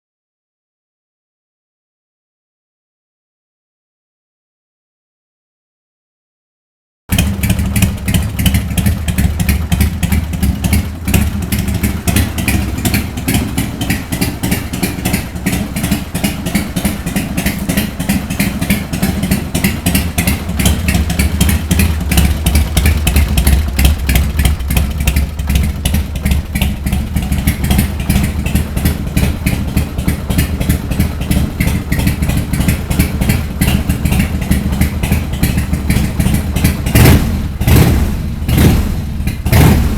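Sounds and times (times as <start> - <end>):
motorcycle engine idling: 7.1 - 39.9.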